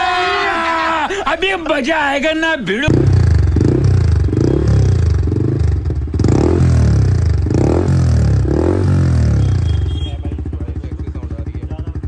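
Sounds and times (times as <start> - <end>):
motorcycle engine revving: 2.9 - 12.0.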